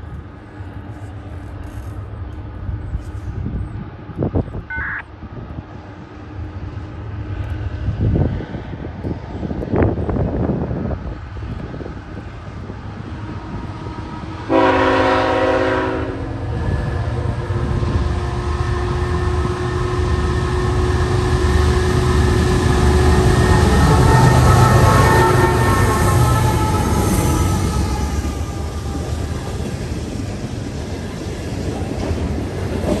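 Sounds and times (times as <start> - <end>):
train diesel engines: 0.0 - 33.0
locomotive air horn: 14.5 - 16.4, 22.6 - 29.0.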